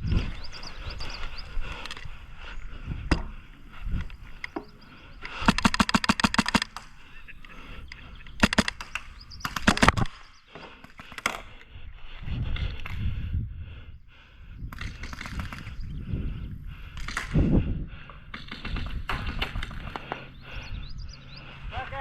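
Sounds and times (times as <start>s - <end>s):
airsoft guns firing bursts: 4.3s - 11.1s, 14.8s - 15.9s, 18.3s - 20.6s.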